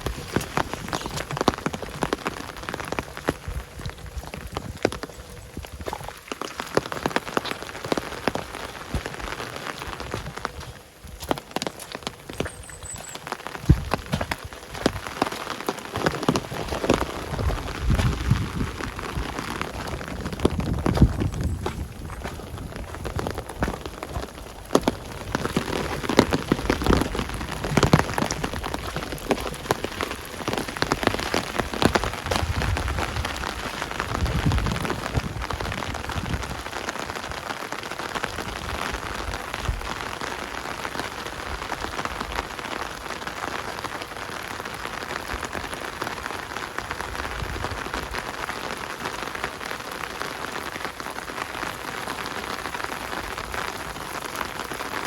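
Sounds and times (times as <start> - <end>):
rain pattering: 0.0 - 55.0
low thuds: 13.6 - 15.0.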